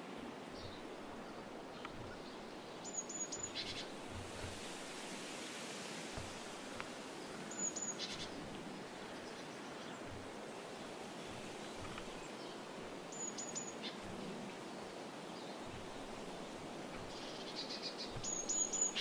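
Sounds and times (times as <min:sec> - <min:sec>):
outdoor hiss: 0:00.0 - 0:19.0
high thin bird chirps: 0:16.9 - 0:19.0.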